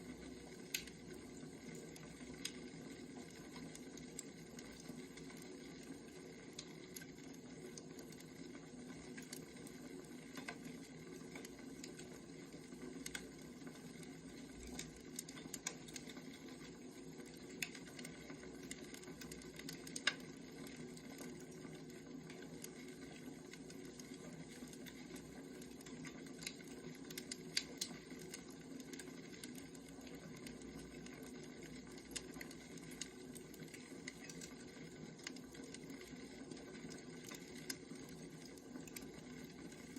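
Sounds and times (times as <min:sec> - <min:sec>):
firewood crackling: 0:00.1 - 0:39.9.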